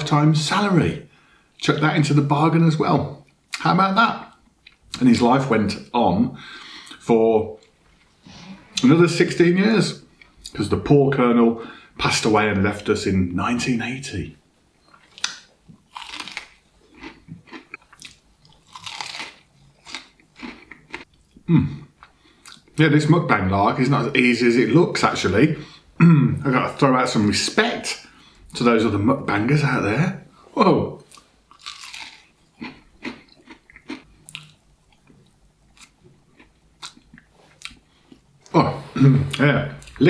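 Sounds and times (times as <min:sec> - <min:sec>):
person chewing: 0:14.8 - 0:22.8, 0:31.0 - 0:38.4
crunching fried coating: 0:15.1 - 0:21.1, 0:31.1 - 0:34.6.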